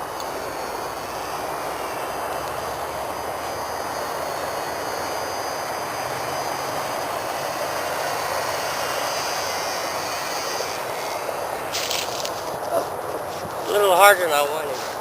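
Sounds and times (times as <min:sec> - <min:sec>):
model plane motors whining: 0:00.0 - 0:15.0
propeller rushing noise: 0:00.0 - 0:15.0.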